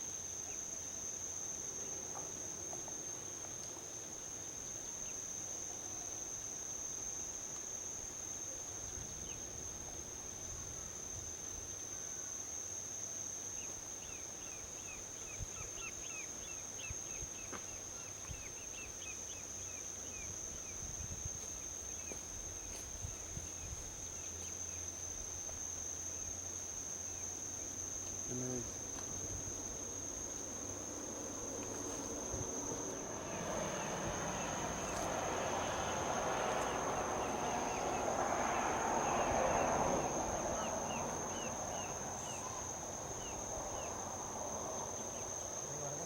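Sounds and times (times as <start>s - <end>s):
high-pitched insect trill: 0.0s - 46.0s
distant highway traffic: 24.2s - 46.0s.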